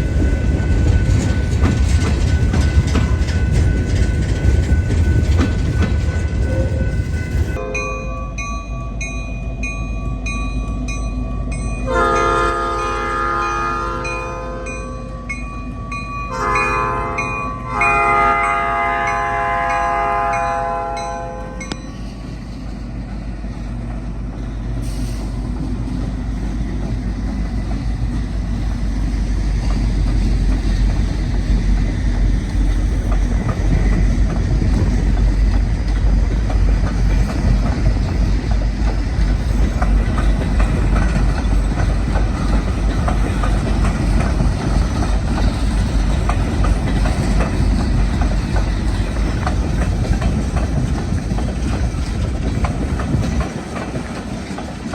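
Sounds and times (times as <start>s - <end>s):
wheels clicking over rail joints: 0.0s - 7.6s, 18.8s - 54.9s
train rumbling past: 0.0s - 54.9s
locomotive horn: 7.6s - 8.3s, 11.8s - 15.4s, 16.3s - 21.8s.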